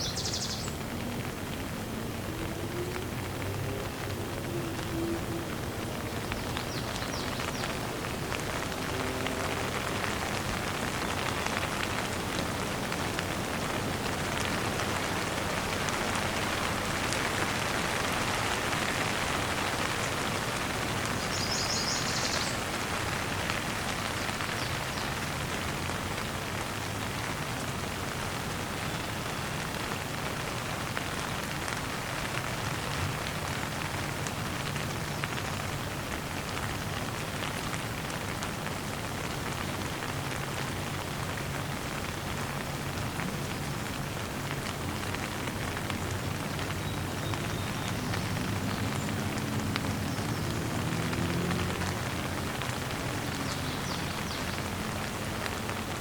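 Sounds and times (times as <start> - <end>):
rain pattering on surfaces: 0.0 - 56.0.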